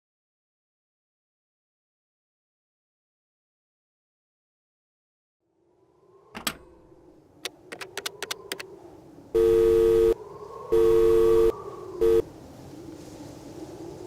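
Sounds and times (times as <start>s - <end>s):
sharp clicks: 7.4s - 8.7s
electronic two-note beep: 9.4s - 10.2s, 10.8s - 12.2s.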